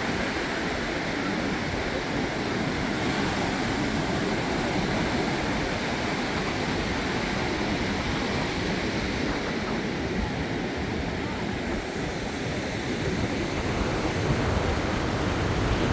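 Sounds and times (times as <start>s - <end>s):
sea surf rushing: 0.0s - 15.9s.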